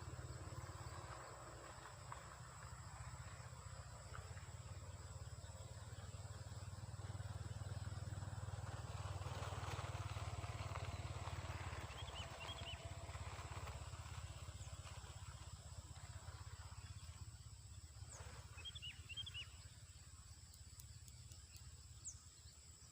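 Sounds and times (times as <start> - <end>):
high insect drone: 0.0 - 22.9
bird chirps: 11.8 - 12.9, 17.8 - 22.9.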